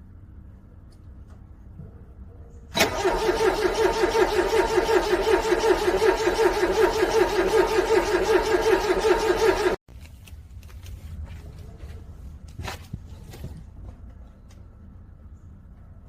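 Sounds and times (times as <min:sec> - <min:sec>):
starter motor cranking engine: 0:02.7 - 0:09.8.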